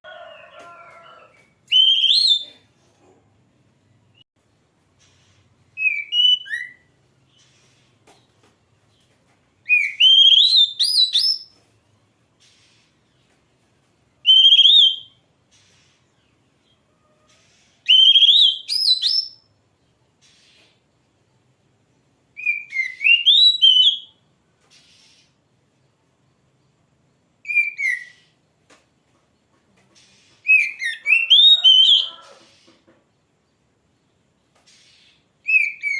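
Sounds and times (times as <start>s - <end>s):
bird singing warbled whistles: 1.7s - 2.4s, 5.8s - 6.9s, 9.7s - 11.5s, 14.3s - 15.2s, 17.9s - 19.4s, 22.4s - 24.2s, 27.5s - 28.3s, 30.4s - 32.2s, 35.5s - 35.9s.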